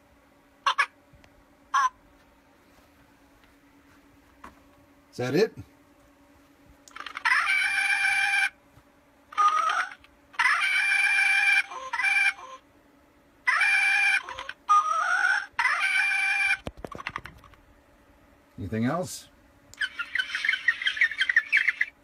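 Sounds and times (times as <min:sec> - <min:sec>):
toy speaker bird-like calls: 0:00.6 - 0:01.0, 0:01.7 - 0:02.0, 0:06.9 - 0:08.6, 0:09.3 - 0:12.6, 0:13.4 - 0:17.2, 0:19.8 - 0:22.0.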